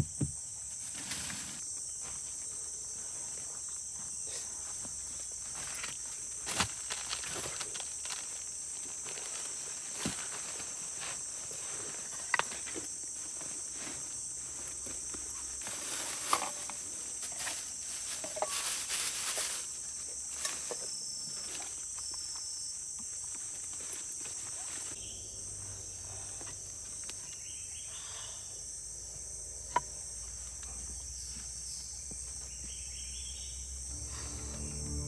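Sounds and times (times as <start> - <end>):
forest insects chorus: 0.0 - 35.0
rustling and handling noises: 15.6 - 20.8.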